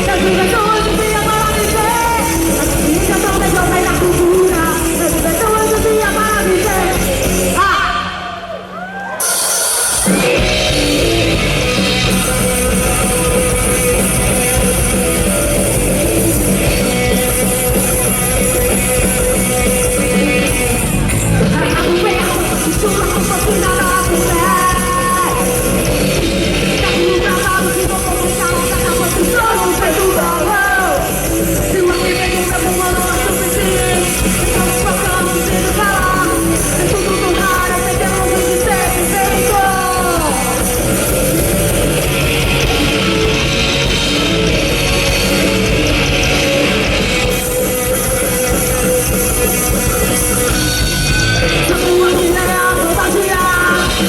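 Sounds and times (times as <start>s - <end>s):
person singing: 0.0s - 8.4s, 21.4s - 50.2s, 51.5s - 54.0s
live rock band playing: 0.0s - 54.0s.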